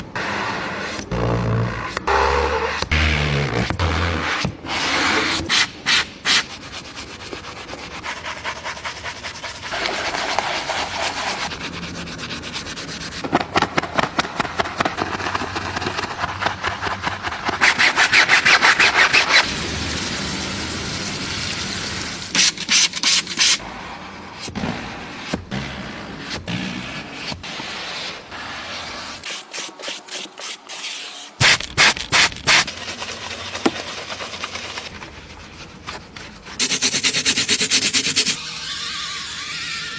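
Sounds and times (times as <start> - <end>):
fast scrubbing strokes: 6.3 - 13.2, 27.5 - 38.4.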